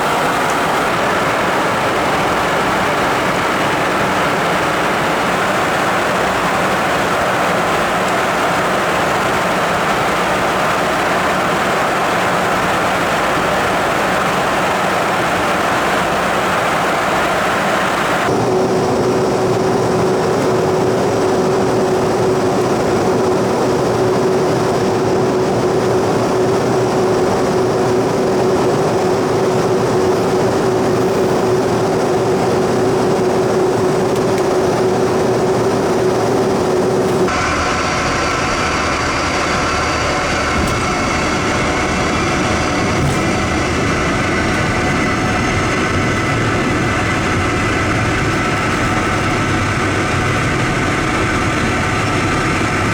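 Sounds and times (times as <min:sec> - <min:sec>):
jet engine rush: 0:00.0 - 0:52.9
steady hum: 0:33.7 - 0:52.9.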